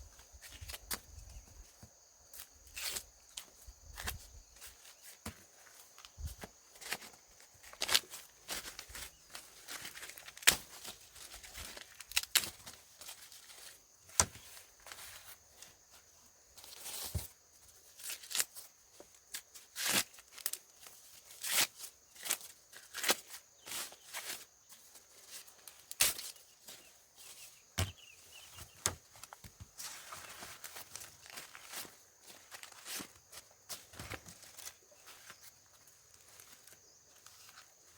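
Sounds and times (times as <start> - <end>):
corn plants rustling: 0.1 - 37.9
sharp snaps of corn: 10.4 - 10.8, 25.9 - 26.4.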